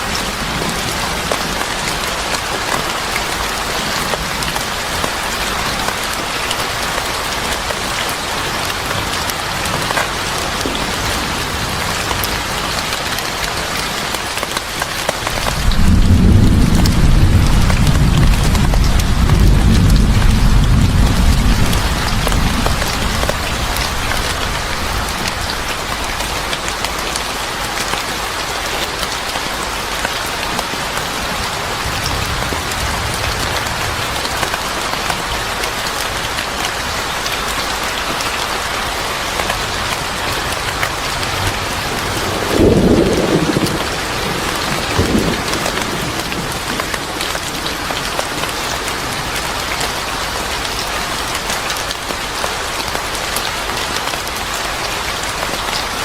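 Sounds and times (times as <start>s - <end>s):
heavy rain falling: 0.0s - 56.0s
thunder rumbling: 15.4s - 25.6s, 40.2s - 49.7s.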